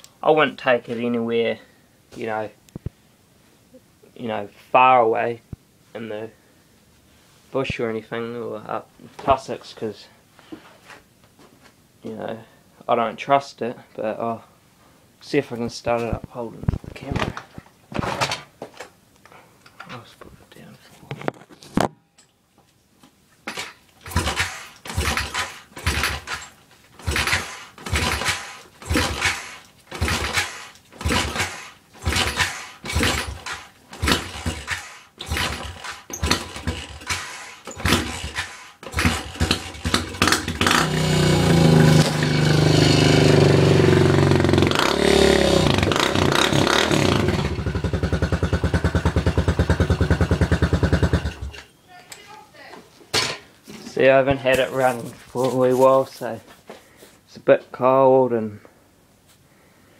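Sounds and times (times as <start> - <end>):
motorbike engine kick-started: 23.5 - 51.7
motorbike engine revving and idling: 24.0 - 51.6.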